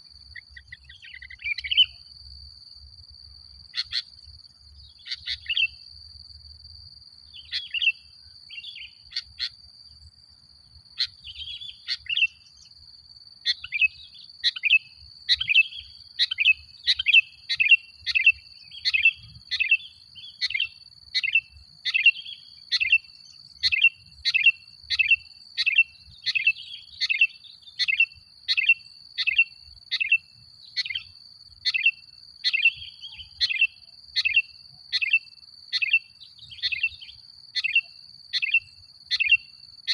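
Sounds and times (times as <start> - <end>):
bulbul chirping calls: 3.7 - 4.1, 4.8 - 5.8, 7.4 - 9.6, 11.0 - 12.6, 13.5 - 23.0, 30.8 - 35.2.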